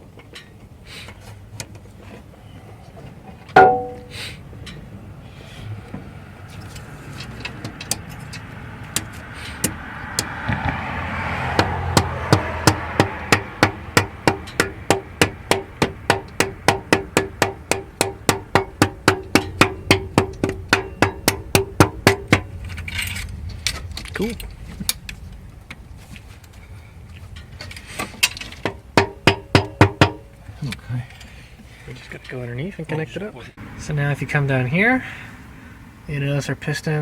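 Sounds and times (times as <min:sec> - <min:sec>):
metallic clank: 0:03.5 - 0:04.8, 0:12.6 - 0:23.9
hammer tapping on metal: 0:03.6 - 0:04.2, 0:11.6 - 0:22.5, 0:28.6 - 0:30.3.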